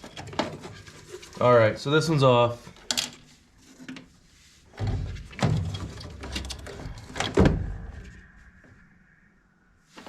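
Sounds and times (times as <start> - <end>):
rustling and clattering of parts: 0.0 - 8.2.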